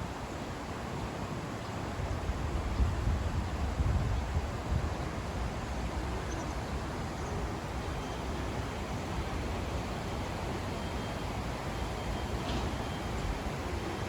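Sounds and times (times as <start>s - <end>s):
outdoor background hiss: 0.0s - 14.0s
wind rumble on microphone: 1.9s - 7.6s.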